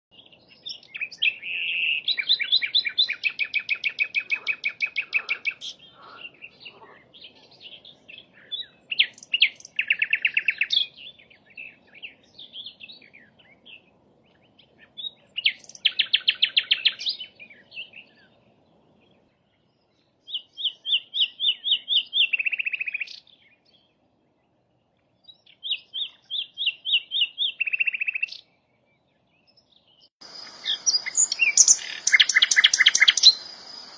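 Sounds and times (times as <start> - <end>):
flycatcher singing: 30.2 - 33.9.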